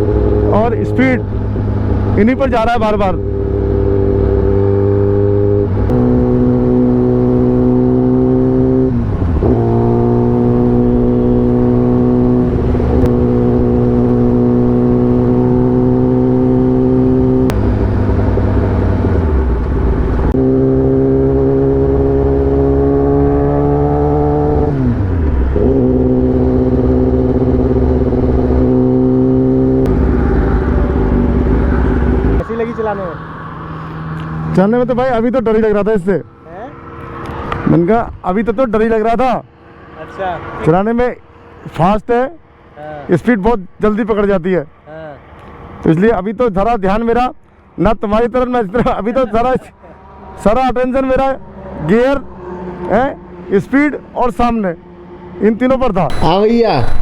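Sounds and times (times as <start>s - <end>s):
motorcycle engine running: 0.0s - 32.4s.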